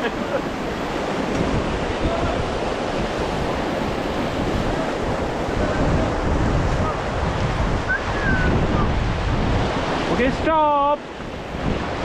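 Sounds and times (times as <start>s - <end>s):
whitewater rushing and splashing: 0.0s - 12.0s
wind on microphone: 0.0s - 12.0s.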